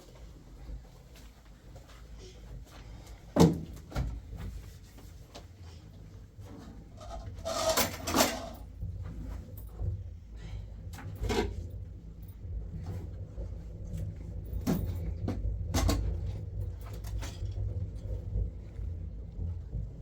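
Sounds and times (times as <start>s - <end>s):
scraping rustle: 7.0s - 8.6s.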